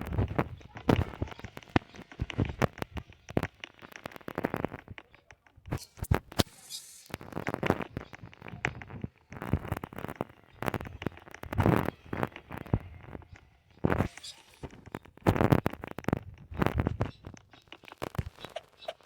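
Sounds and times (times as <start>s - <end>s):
close-up clicks and taps: 0.0s - 18.7s
scratching sounds: 0.0s - 19.0s
brief high hiss: 5.8s - 7.3s.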